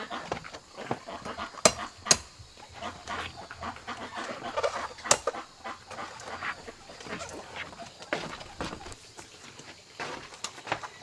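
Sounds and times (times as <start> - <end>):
chickens clucking: 0.0 - 11.0
sharp knocks: 1.2 - 3.2, 5.0 - 5.4.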